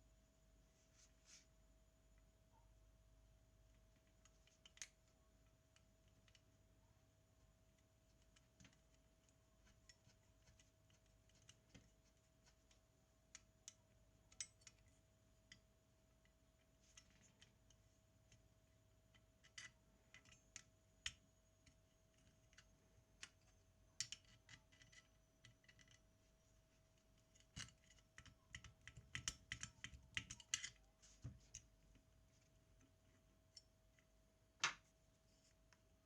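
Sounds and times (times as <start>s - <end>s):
faint steady hum: 0.0s - 36.0s
small metal parts clicking: 19.1s - 26.0s, 27.2s - 30.8s.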